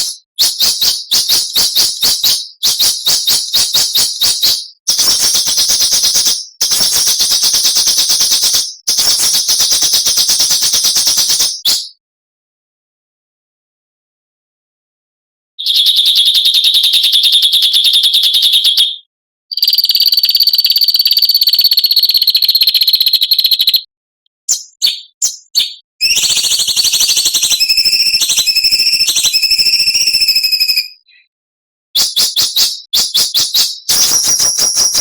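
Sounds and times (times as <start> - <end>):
quick bird chirps: 24.5 - 29.4.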